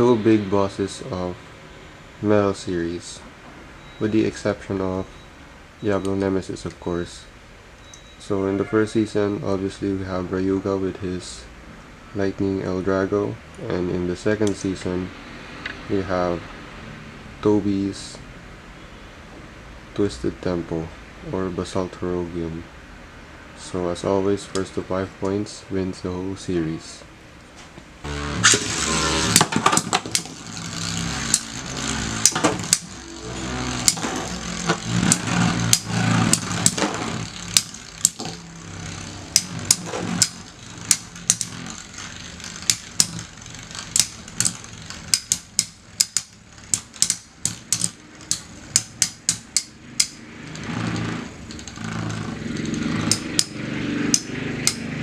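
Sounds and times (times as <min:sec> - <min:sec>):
spinning tops whirring: 0:28.0 - 0:55.0
spinning tops clashing metal clacks: 0:28.4 - 0:55.0.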